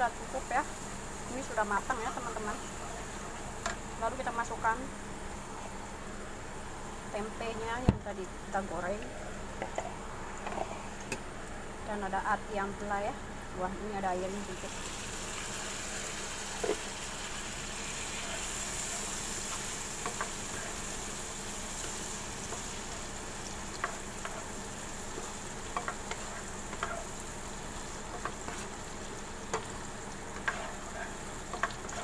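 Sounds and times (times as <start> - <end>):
chili sauce sizzling in a wok: 0.0 - 7.7, 13.2 - 32.0
spatula scraping and tapping pan: 19.5 - 20.8, 23.8 - 27.2, 28.1 - 28.8, 30.3 - 32.0.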